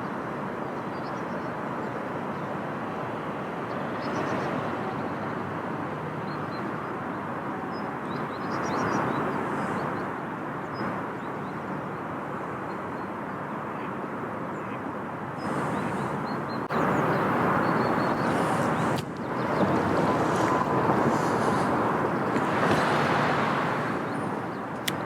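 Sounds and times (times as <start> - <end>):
outdoor rushing noise: 15.4 - 25.0.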